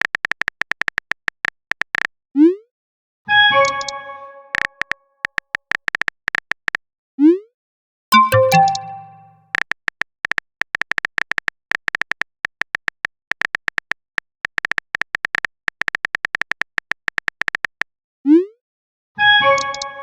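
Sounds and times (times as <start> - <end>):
phone keyboard typing ticks: 8.2 - 9.3.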